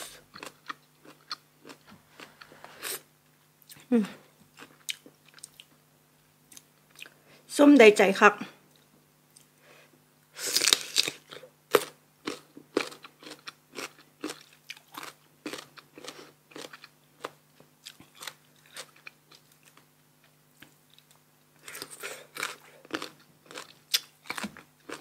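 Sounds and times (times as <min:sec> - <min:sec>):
crunchy mango chewing: 0:00.1 - 0:02.5, 0:10.5 - 0:19.9, 0:20.6 - 0:25.0.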